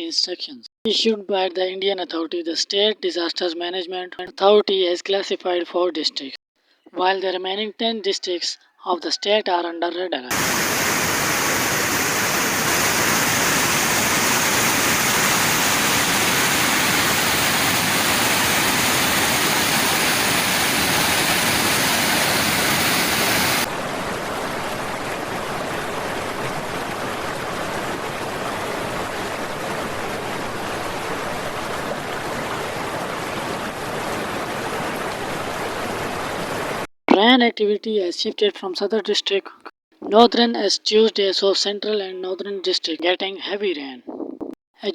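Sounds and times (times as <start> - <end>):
rushing water: 10.3 - 36.9.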